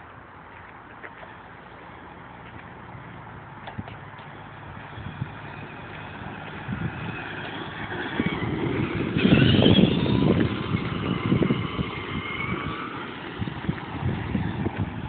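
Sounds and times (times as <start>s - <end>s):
tyres crunching on dirt: 0.0s - 15.0s
electric motor whine: 4.4s - 15.0s.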